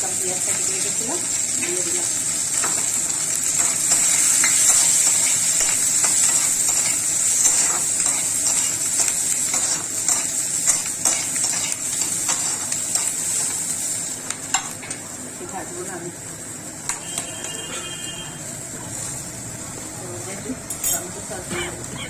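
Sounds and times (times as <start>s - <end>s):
vegetables sizzling in hot oil: 0.0s - 22.0s
spatula scraping pan: 3.6s - 13.6s.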